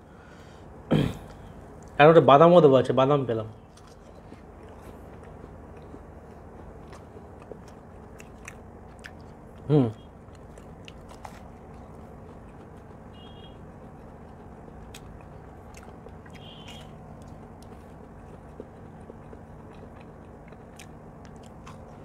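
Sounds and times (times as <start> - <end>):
chewing and biting food: 3.5 - 22.0.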